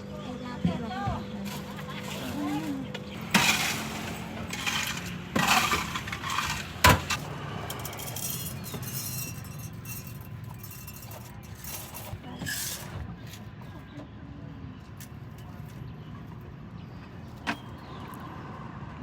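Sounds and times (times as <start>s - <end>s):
glassware and utensils clinking: 3.3s - 13.0s.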